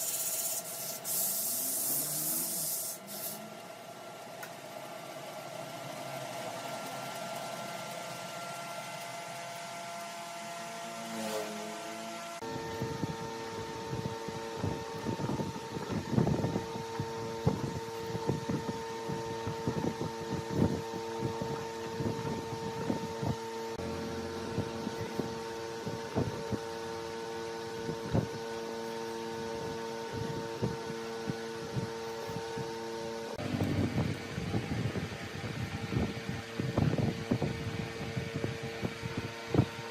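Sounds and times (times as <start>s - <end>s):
tool scraping spinning wood: 0.0s - 3.5s
lathe motor hum: 0.0s - 18.6s, 23.5s - 27.8s.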